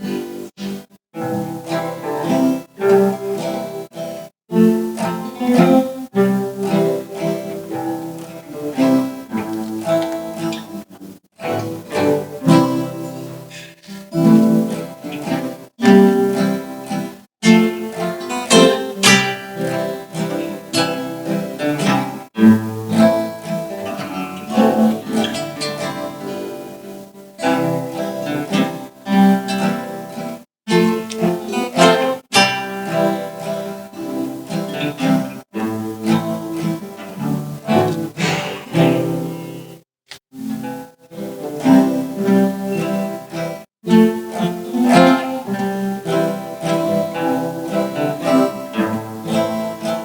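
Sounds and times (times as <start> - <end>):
string orchestra playing: 4.6 - 39.6, 41.1 - 50.0.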